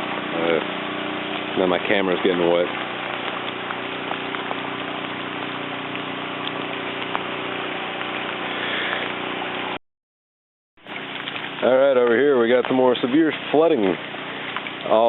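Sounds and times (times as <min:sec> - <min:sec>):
stream water rushing: 0:00.0 - 0:09.6.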